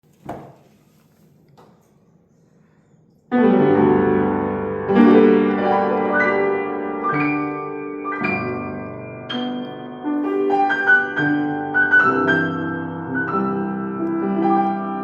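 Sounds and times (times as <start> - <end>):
piano chords ringing: 3.3 - 15.0.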